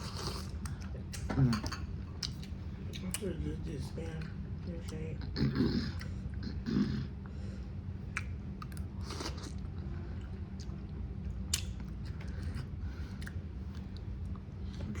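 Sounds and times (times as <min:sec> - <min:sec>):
person chewing: 0:00.0 - 0:03.2, 0:08.0 - 0:14.5
steady low hum: 0:00.0 - 0:15.0.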